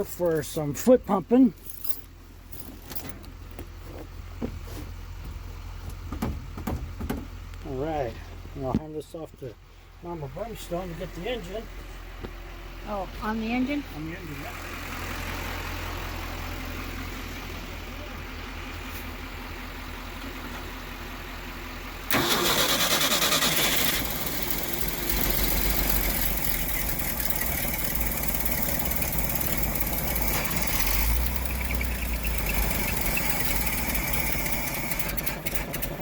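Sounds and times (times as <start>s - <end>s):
truck engine running unevenly: 0.0s - 8.7s, 9.3s - 36.0s.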